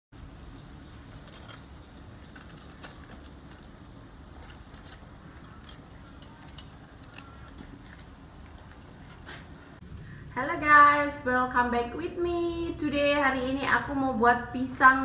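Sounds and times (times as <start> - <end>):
steady low hum: 0.2 - 15.0
metal tongs clinking: 4.4 - 7.6.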